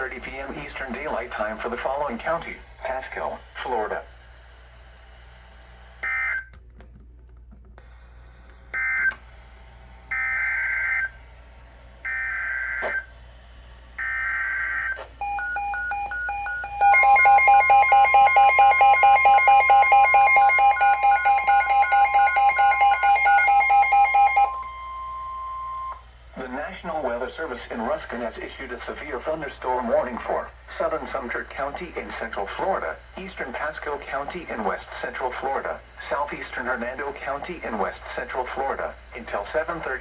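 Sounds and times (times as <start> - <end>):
steady warning alarm tone: 14.0 - 26.0
alarm beeps: 15.2 - 26.0.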